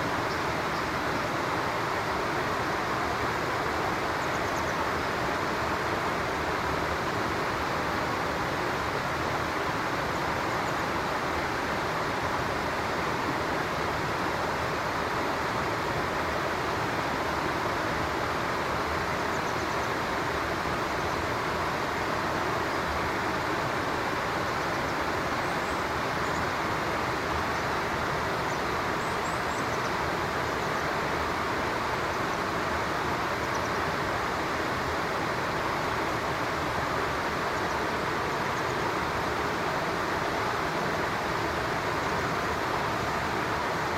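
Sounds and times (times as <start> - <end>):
stream water rushing: 0.0 - 43.9
faint bird chirps: 28.4 - 30.8.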